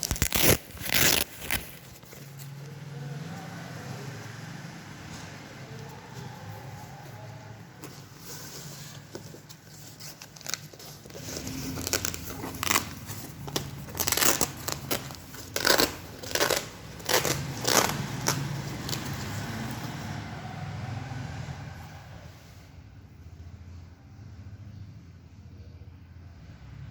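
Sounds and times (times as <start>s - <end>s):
fabric crinkling and rustling: 0.0s - 2.7s, 7.8s - 20.0s.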